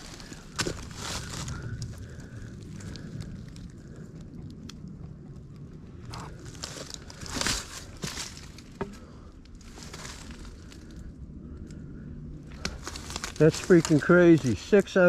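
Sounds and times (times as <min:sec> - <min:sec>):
footsteps crunching through dry litter: 0:00.0 - 0:03.5, 0:06.2 - 0:10.8, 0:12.5 - 0:14.8
twigs snapping: 0:00.0 - 0:11.8, 0:12.4 - 0:15.0.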